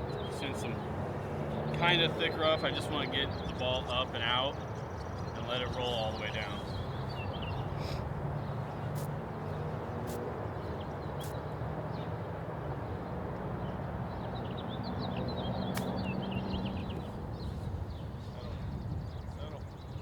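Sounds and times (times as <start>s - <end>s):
small birds chirping: 0.0s - 20.0s
faint sharp clicks: 15.7s - 16.1s.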